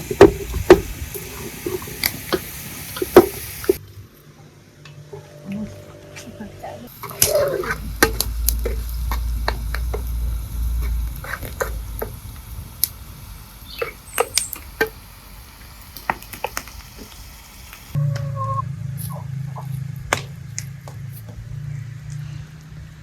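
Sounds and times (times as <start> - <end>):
wood fire crackling: 0.0 - 3.8, 6.9 - 18.0
steady low hum: 0.0 - 23.0
low rumble: 5.5 - 14.1.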